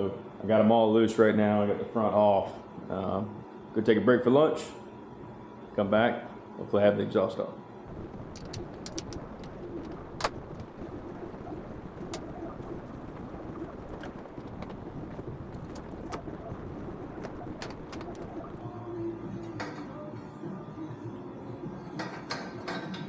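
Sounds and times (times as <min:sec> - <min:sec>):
sharp clicks: 0:08.3 - 0:10.7.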